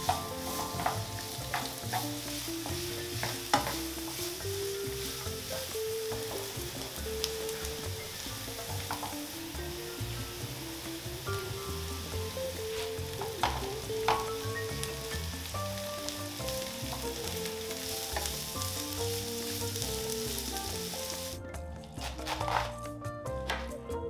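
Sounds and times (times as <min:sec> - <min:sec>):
vegetables sizzling in a frying pan: 0:00.0 - 0:23.9
knife cutting cabbage on a board: 0:22.0 - 0:22.8.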